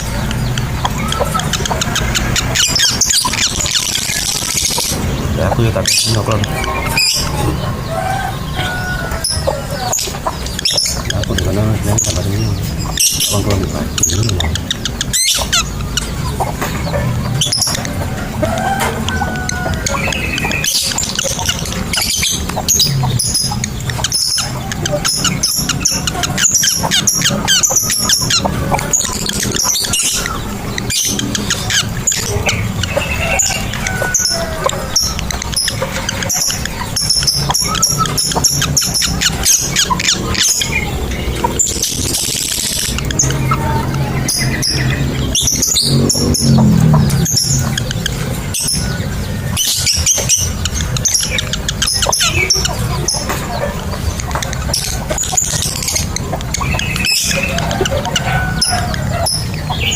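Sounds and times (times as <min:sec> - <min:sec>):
lovebird chattering shrill chirps: 0:00.0 - 0:07.5, 0:19.1 - 0:53.3.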